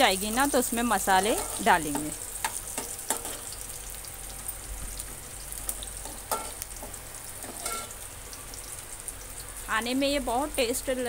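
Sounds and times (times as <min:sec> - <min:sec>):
onions sizzling in hot oil: 0:00.0 - 0:11.0
metal spoon clinking against pot: 0:07.5 - 0:07.9.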